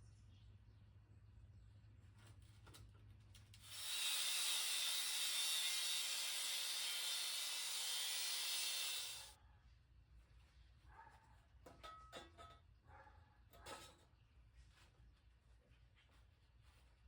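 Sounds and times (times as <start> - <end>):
angle grinder cutting steel: 3.6 - 9.3.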